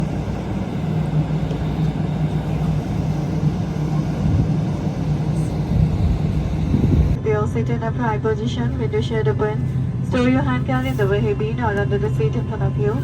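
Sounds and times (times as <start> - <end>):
airliner engine rumble: 0.0 - 13.0
constant low hum: 0.0 - 13.0.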